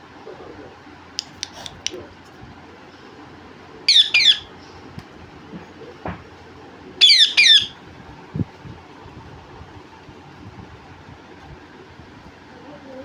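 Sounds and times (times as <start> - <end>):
parrot squawking: 3.9 - 4.5, 7.0 - 7.8.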